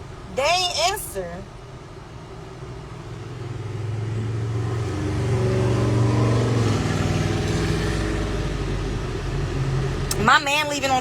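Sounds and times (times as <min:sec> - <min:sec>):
car engine accelerating: 0:03.1 - 0:10.2.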